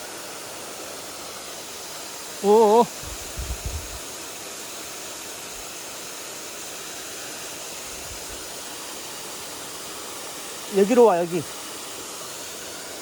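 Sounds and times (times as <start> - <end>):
stream rushing over rocks: 0.0 - 13.0
faint low bumps: 3.0 - 4.0.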